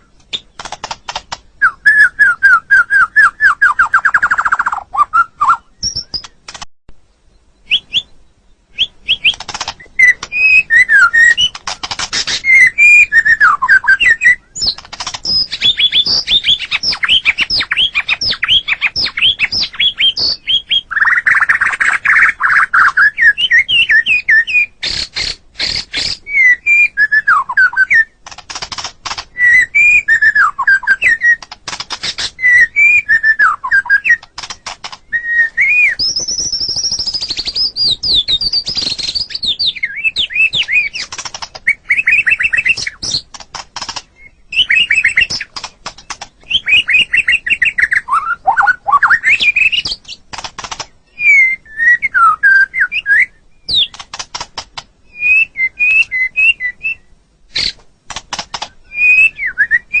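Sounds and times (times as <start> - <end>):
bird whistled song: 0.0 - 6.4, 7.2 - 28.2, 29.3 - 34.3, 35.0 - 43.3, 44.2 - 45.5, 46.4 - 50.2, 51.0 - 54.0, 55.1 - 57.8, 58.6 - 60.0
bird sharp clicking notes: 0.2 - 1.8, 3.6 - 6.7, 8.8 - 22.9, 28.2 - 29.5, 30.1 - 35.2, 36.0 - 51.0, 53.7 - 54.9, 57.6 - 59.2.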